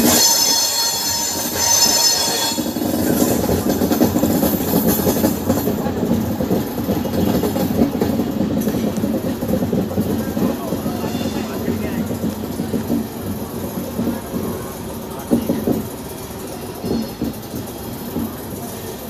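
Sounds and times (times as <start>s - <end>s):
high-pitched wheel squeal: 0.0s - 3.4s, 10.8s - 11.8s
train wheels clattering on rail: 0.0s - 19.0s.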